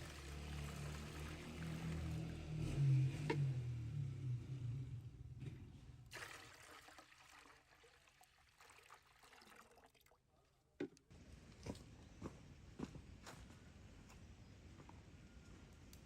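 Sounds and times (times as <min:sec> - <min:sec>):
faint trickling water: 0:00.0 - 0:02.4, 0:06.1 - 0:10.6.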